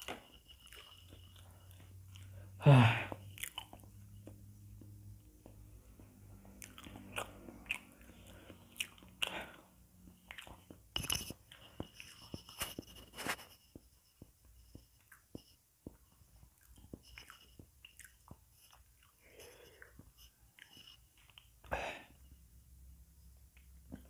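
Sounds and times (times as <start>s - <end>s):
wet chewing smacks and clicks: 0.0s - 2.4s, 3.1s - 12.6s, 14.7s - 21.7s.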